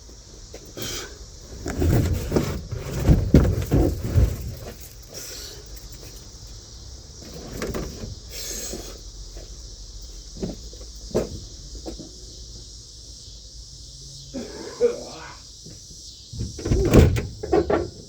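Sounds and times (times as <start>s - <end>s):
car headliner rustling: 1.5s - 5.0s.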